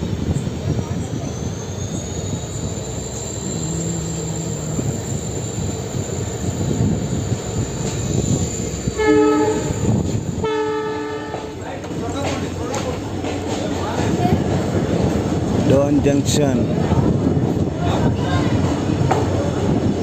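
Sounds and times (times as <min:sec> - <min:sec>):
train rumbling on rails: 0:00.0 - 0:20.0
thin high whine: 0:02.0 - 0:10.0
train horn blasts: 0:08.9 - 0:11.6.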